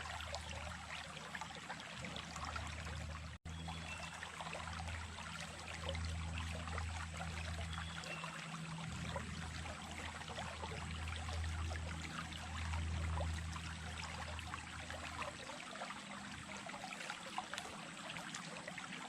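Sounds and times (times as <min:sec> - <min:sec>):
small stream flowing: 0:00.0 - 0:19.0.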